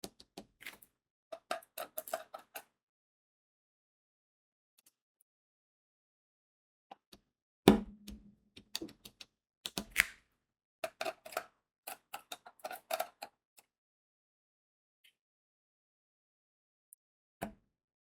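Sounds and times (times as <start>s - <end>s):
small plastic clicks and taps: 8.0s - 10.2s.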